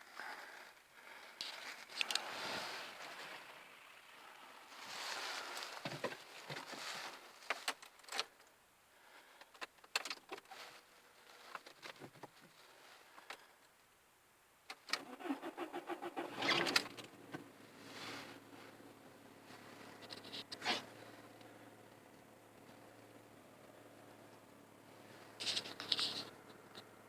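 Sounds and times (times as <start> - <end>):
starter motor cranking: 14.9 - 17.2.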